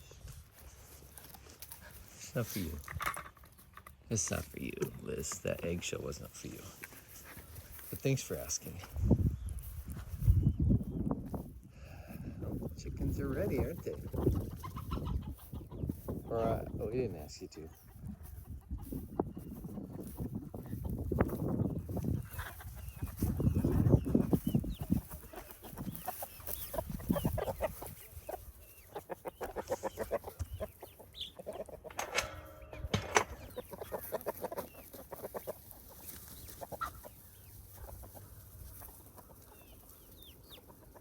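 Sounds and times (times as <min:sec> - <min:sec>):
chickens clucking and chirping: 0:00.0 - 0:41.0
handling noise: 0:31.8 - 0:34.2.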